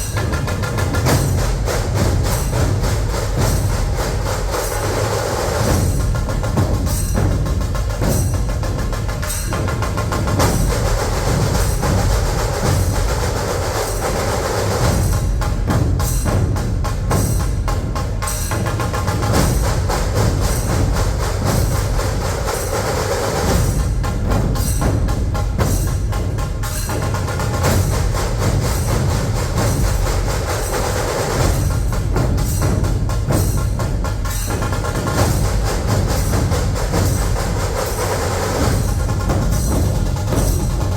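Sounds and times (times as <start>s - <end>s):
barrel drums: 0.0s - 40.9s
kettle drums rapid strokes: 0.0s - 40.9s.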